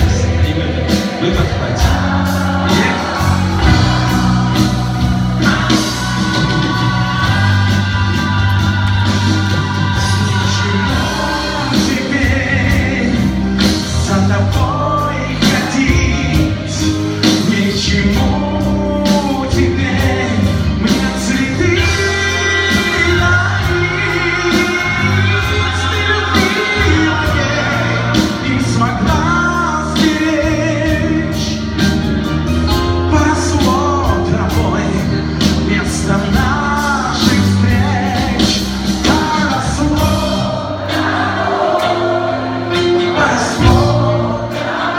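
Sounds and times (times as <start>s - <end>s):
pop band playing: 0.0s - 44.9s.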